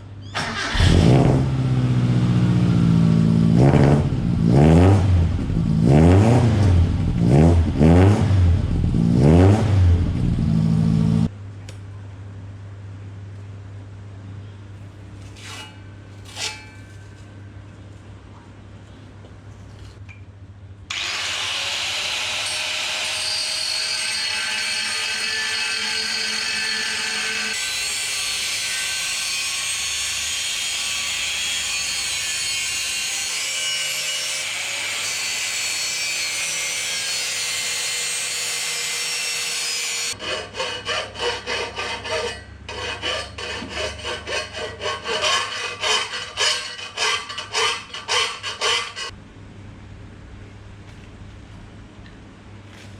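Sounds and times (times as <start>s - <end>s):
power tool cutting or grinding: 20.9s - 49.1s
back-and-forth scraping strokes: 40.1s - 49.2s.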